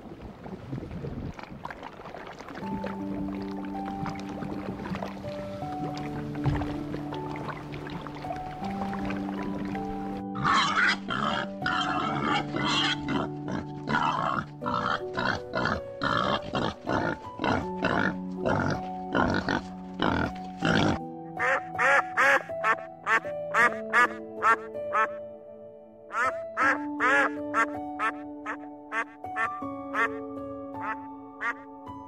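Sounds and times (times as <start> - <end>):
background music: 2.6 - 32.0
pigs grunting: 10.4 - 21.0
ducks quacking: 10.4 - 25.2, 26.1 - 30.2, 30.8 - 31.6.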